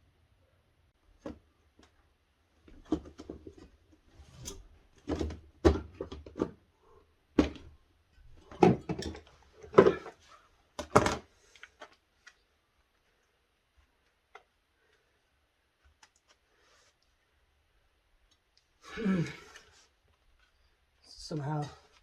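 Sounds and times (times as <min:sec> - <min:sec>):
knocks and clatter of parts: 0:02.6 - 0:06.6, 0:07.4 - 0:10.2, 0:10.8 - 0:12.0.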